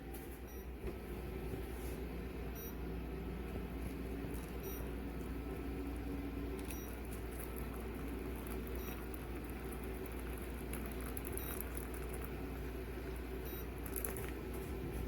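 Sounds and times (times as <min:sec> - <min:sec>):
kettle heating water rumble and hiss: 0:00.0 - 0:15.0.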